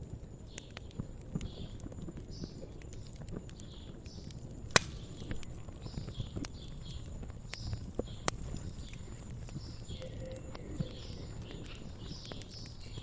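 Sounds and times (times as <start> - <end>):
wood fire crackling and popping: 0.0 - 13.0
soft bird chirps: 0.4 - 13.0.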